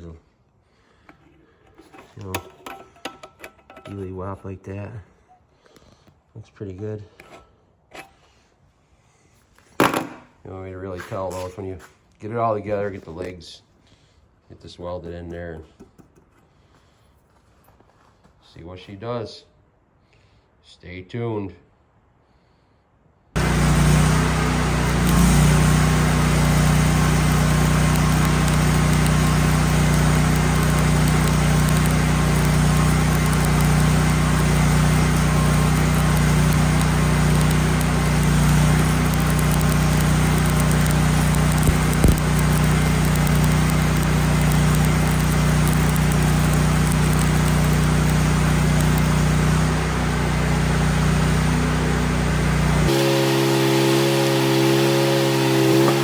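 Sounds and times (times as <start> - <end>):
welder engine running: 23.4 - 56.0
welding arc hiss: 23.4 - 56.0.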